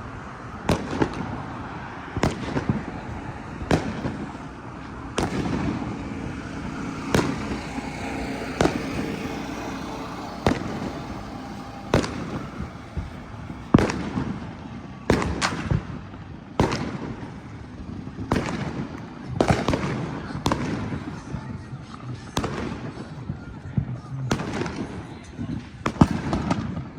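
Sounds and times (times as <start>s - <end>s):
fireworks bangs with echo: 0.0s - 26.9s
rumble of distant explosions: 0.0s - 26.9s.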